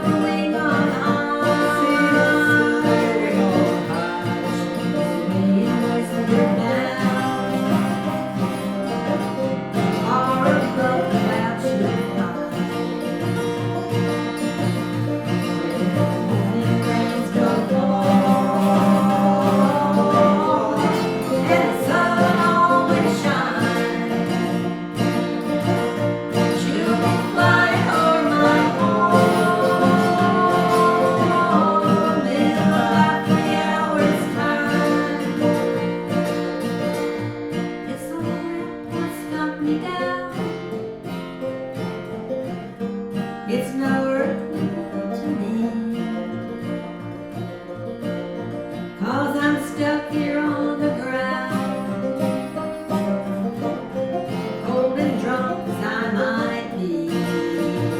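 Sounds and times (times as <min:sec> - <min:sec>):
person singing: 0:00.0 - 0:13.0, 0:15.2 - 0:36.4, 0:37.8 - 0:40.4, 0:49.0 - 0:53.7, 0:54.4 - 0:57.9
acoustic guitar: 0:00.0 - 0:57.9.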